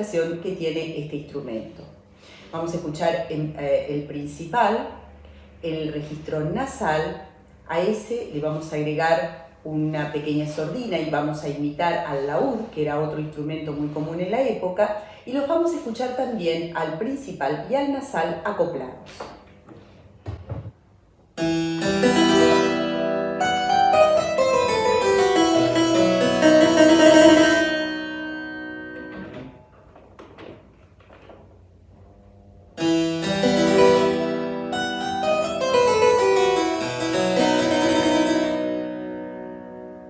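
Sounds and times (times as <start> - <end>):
harpsichord playing: 21.4 - 29.5, 32.8 - 40.0.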